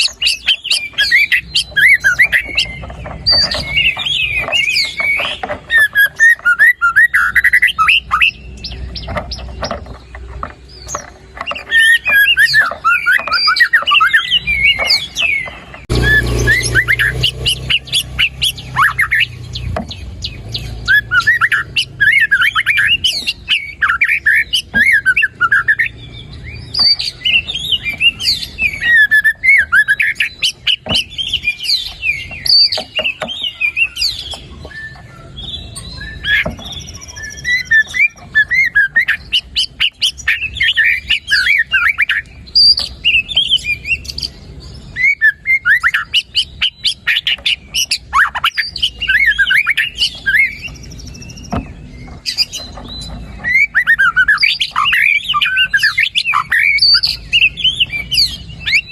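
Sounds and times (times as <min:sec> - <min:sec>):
songbird singing: 0:00.0 - 0:58.9.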